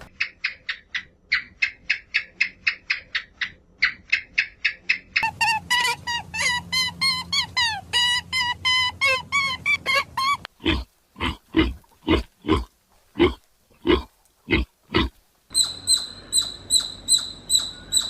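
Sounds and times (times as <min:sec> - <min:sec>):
animal chirping calls: 0:03.8 - 0:10.4, 0:15.5 - 0:18.0
pig grunting: 0:10.6 - 0:15.2.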